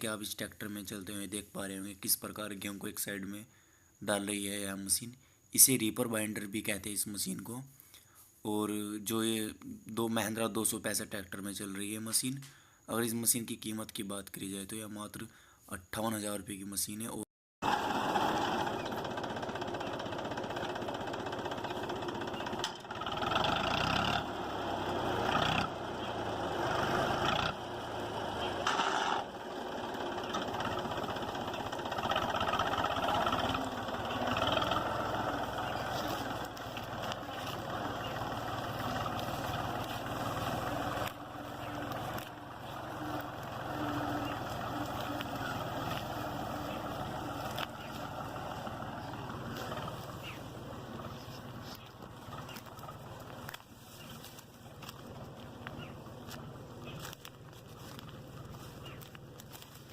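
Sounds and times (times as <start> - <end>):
tractor diesel engine running: 17.6 - 59.9.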